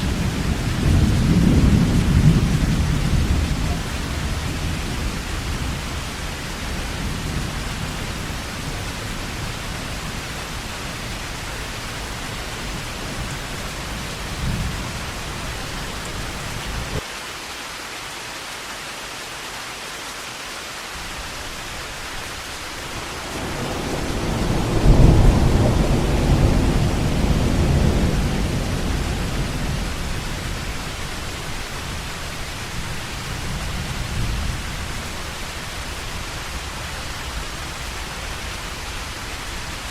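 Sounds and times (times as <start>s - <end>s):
thunder rumbling: 0.0s - 17.0s, 21.4s - 39.9s
heavy rain: 0.0s - 39.9s.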